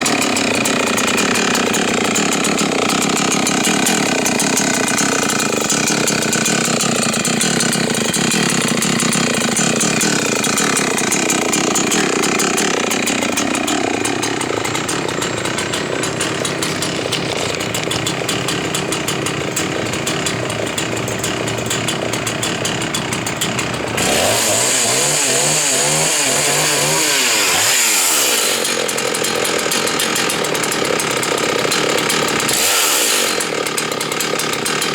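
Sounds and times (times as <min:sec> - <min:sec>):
chainsaw cutting through log: 0:00.0 - 0:34.9.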